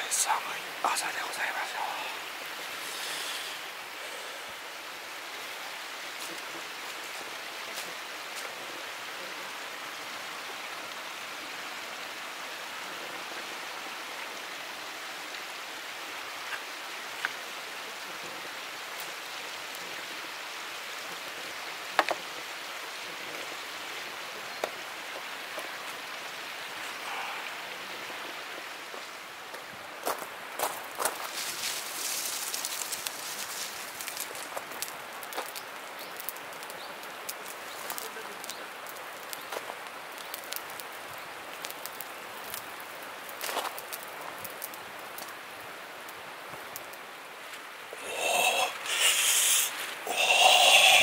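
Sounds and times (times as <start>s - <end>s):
mountain stream rushing: 0.0s - 51.0s
wood fire popping: 29.5s - 51.0s.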